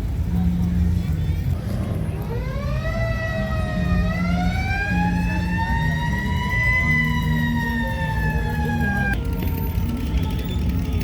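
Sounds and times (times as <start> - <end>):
low vehicle rumble: 0.0 - 11.0
siren wailing: 2.2 - 11.0.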